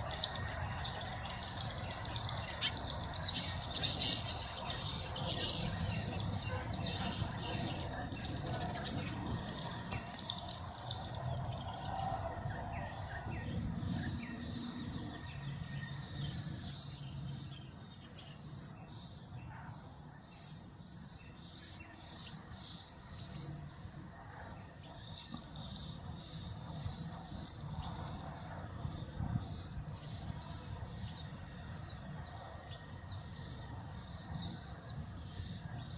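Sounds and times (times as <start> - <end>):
pulsing insect trill: 0.0 - 19.3, 19.9 - 35.9
bird chirps: 0.0 - 19.6.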